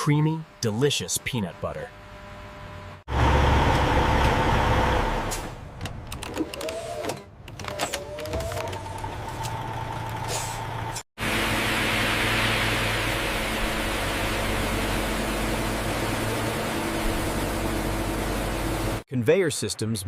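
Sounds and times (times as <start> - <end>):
industrial machinery hum: 0.0 - 5.9, 7.6 - 19.0
mechanical vehicle noise: 1.9 - 11.0.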